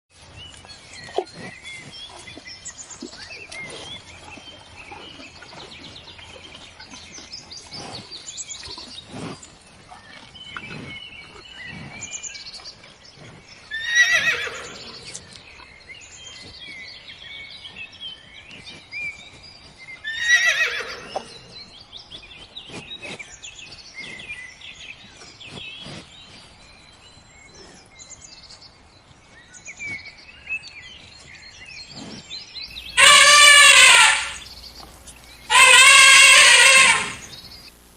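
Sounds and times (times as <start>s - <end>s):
birds chirping: 10.3s - 26.3s, 31.4s - 37.9s
horse whinnying: 13.7s - 15.0s, 20.1s - 21.4s, 32.8s - 37.5s.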